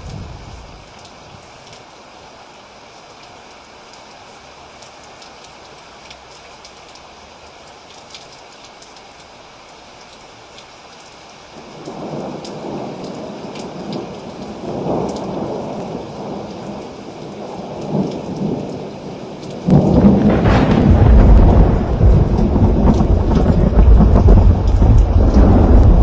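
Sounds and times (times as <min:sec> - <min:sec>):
thunder rolling: 0:00.0 - 0:00.9, 0:19.6 - 0:26.0
steady rain: 0:00.0 - 0:26.0
loud thunderclap: 0:19.6 - 0:26.0.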